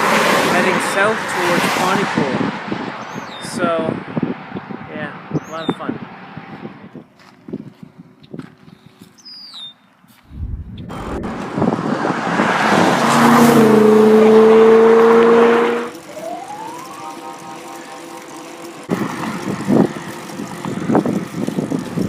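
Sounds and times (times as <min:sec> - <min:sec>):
short rising whine: 0:10.3 - 0:11.9
vehicle passing on highway: 0:10.3 - 0:16.6.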